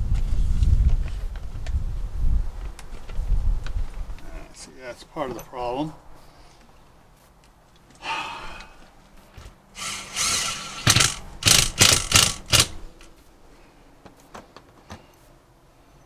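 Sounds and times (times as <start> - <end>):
tools scraping and rattling: 9.8 - 13.2.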